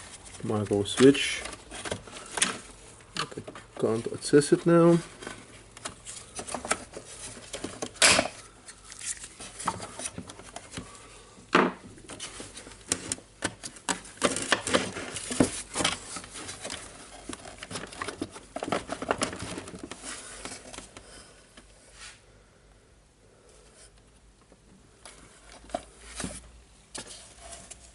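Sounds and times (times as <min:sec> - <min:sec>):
plastic parts clattering: 0:00.0 - 0:10.9, 0:11.6 - 0:21.0.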